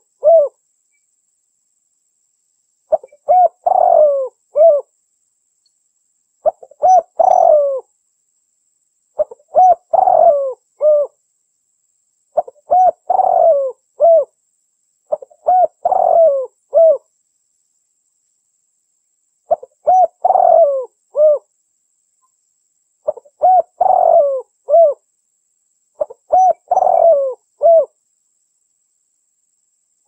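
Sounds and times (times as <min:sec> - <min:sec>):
dove cooing: 0:00.0 - 0:00.6, 0:02.9 - 0:04.9, 0:06.4 - 0:07.9, 0:09.2 - 0:11.2, 0:12.4 - 0:14.4, 0:15.1 - 0:17.1, 0:19.5 - 0:21.5, 0:23.0 - 0:25.0, 0:26.0 - 0:28.0.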